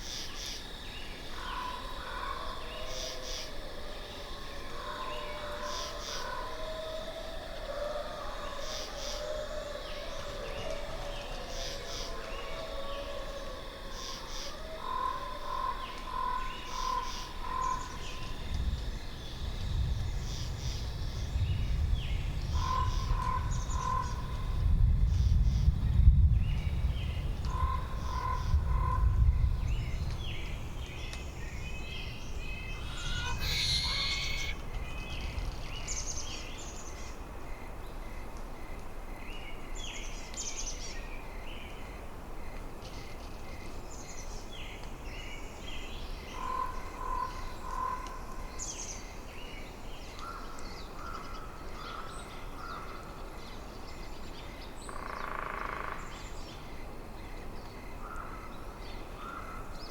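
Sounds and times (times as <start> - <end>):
wind gusting: 18.3 - 36.6
small birds calling: 32.0 - 35.3
lower bird call notes: 32.6 - 34.6.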